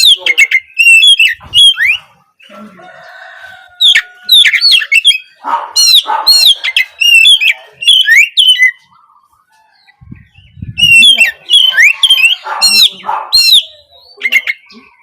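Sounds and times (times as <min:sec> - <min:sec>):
bird singing whistled phrases: 0:00.0 - 0:02.5, 0:03.9 - 0:08.8, 0:10.5 - 0:15.0.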